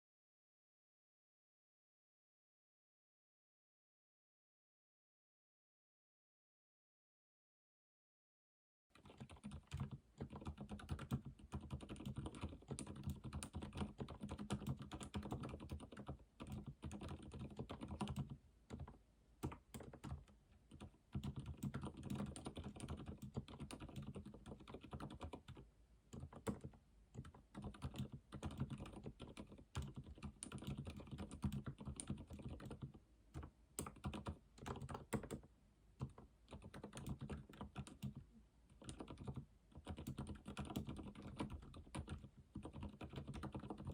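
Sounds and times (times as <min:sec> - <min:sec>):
typing on computer keyboard: 0:09.0 - 0:43.9.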